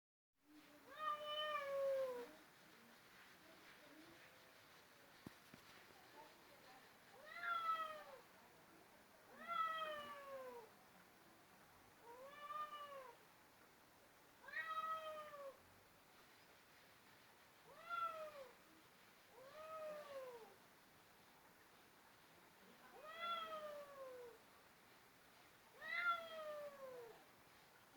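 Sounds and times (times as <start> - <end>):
cat meowing: 12.1 - 13.2, 14.4 - 15.6, 22.9 - 24.4, 25.8 - 27.2.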